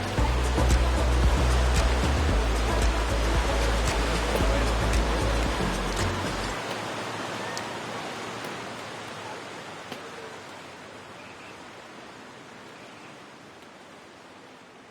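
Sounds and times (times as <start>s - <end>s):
deep bass: 0.0s - 6.6s
hiss-like rushing noise: 0.0s - 8.9s.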